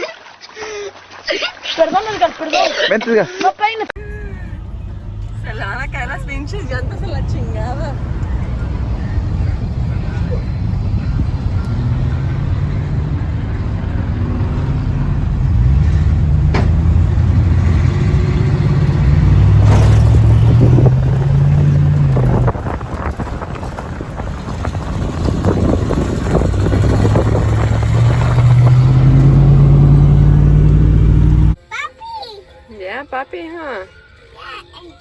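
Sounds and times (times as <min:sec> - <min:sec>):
vehicle engine accelerating: 0:04.0 - 0:31.6.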